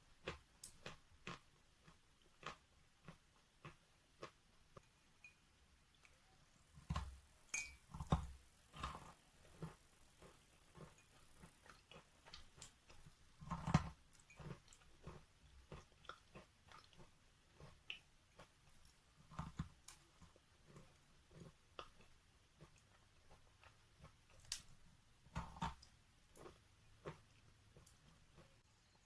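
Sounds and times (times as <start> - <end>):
chalk being chewed: 8.7 - 24.5.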